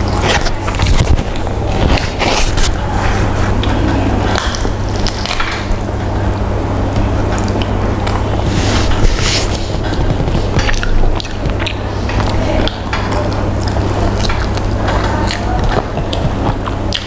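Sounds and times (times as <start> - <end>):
low hum: 0.0 - 14.9
person chewing food: 0.0 - 17.0.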